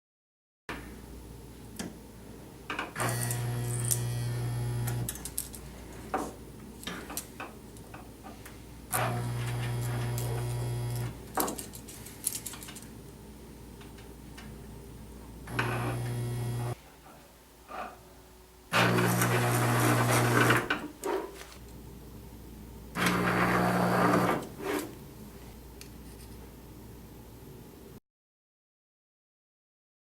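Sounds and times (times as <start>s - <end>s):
welder buzzing: 3.0s - 5.2s, 8.9s - 11.3s, 15.4s - 16.8s, 18.7s - 20.8s, 22.9s - 25.0s.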